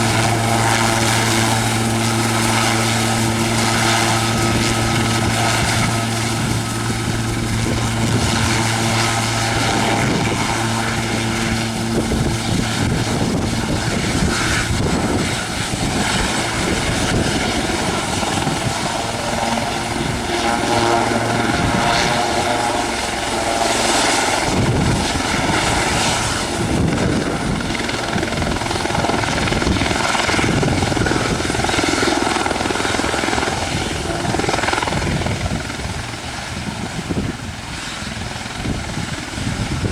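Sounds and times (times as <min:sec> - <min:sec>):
steady low hum: 0:00.0 - 0:30.3
helicopter rotor noise: 0:00.0 - 0:39.9
helicopter turbine engine: 0:00.0 - 0:39.9.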